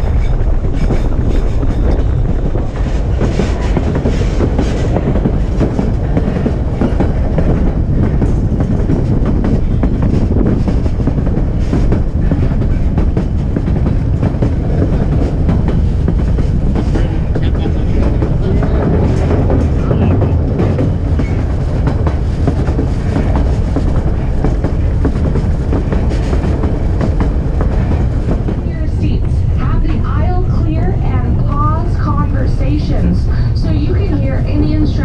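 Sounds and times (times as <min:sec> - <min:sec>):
wheels clacking over rail joints: 0:00.0 - 0:33.1
train rumbling: 0:00.0 - 0:35.0.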